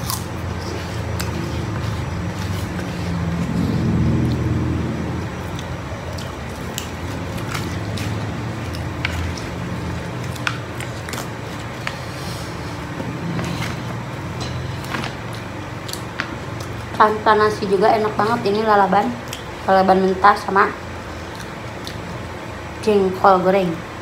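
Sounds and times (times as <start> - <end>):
chewing and lip-smacking: 0.0 - 17.0, 19.2 - 19.6, 21.0 - 22.3.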